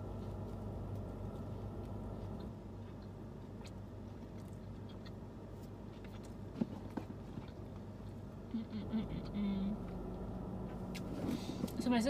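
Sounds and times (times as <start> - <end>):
person chewing: 0.0 - 8.5
low steady hum: 0.0 - 12.0.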